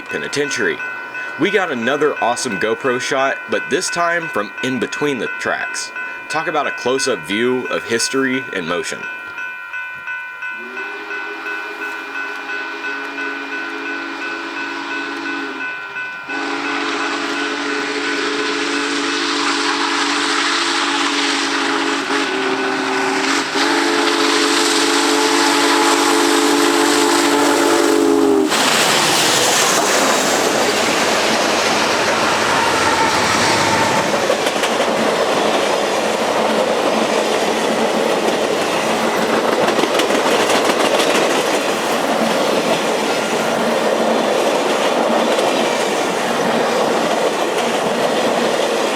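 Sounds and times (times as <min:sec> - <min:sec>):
train wheels clattering: 0:00.0 - 0:48.9
steam whistle blowing: 0:10.5 - 0:34.5
loud steam hiss: 0:16.3 - 0:37.2.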